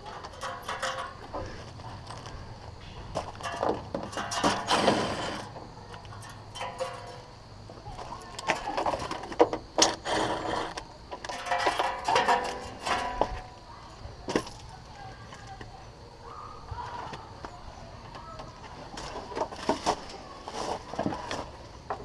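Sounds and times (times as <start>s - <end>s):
knocks and metallic clatter: 0.0s - 1.4s, 2.0s - 10.5s, 11.1s - 13.6s.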